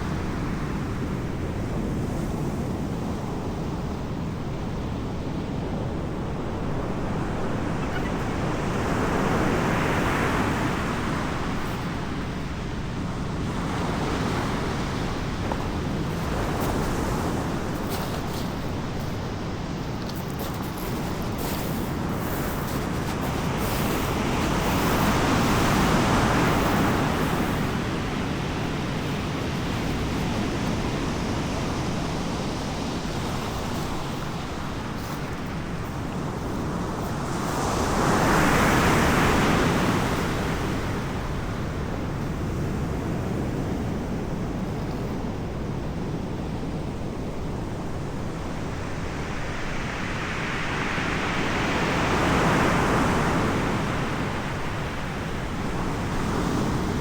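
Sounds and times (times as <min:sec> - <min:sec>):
waves breaking and washing in: 0:00.0 - 0:57.0
background hiss: 0:14.8 - 0:37.2.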